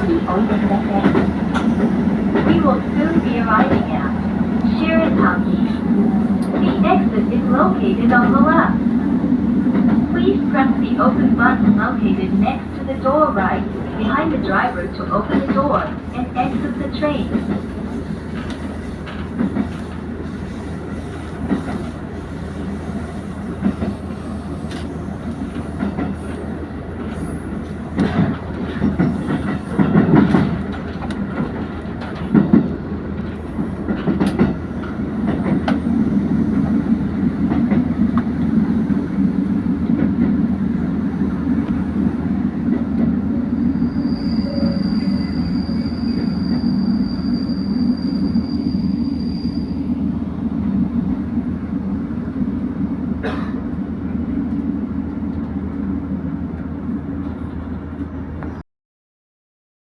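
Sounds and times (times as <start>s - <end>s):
train engine low hum: 0.0s - 58.6s
train wheels clicking over rail joints: 27.9s - 35.9s.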